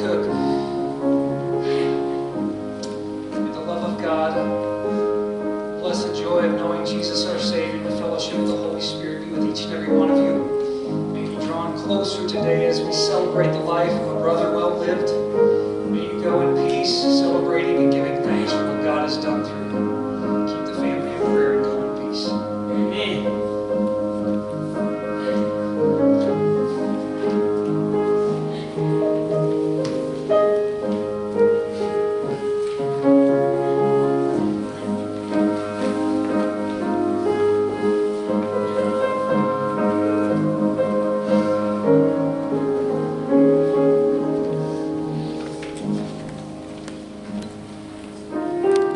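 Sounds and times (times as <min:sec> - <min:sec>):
slow piano music: 0:00.0 - 0:48.9.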